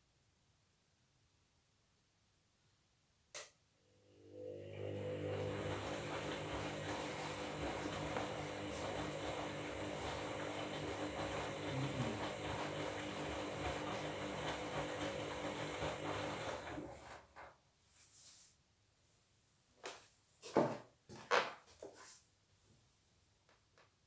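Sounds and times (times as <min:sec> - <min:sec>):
washing machine running: 0:04.1 - 0:17.4.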